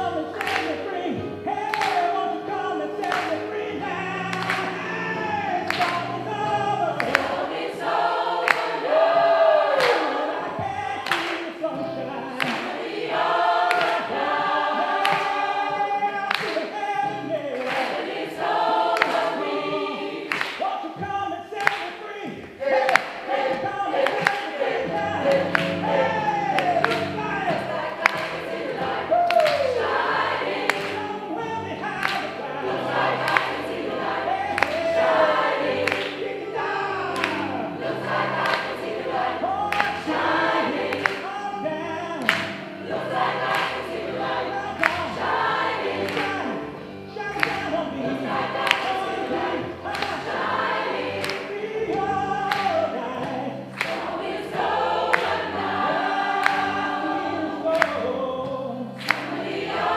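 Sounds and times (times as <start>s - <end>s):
choir singing: 0.0s - 59.9s.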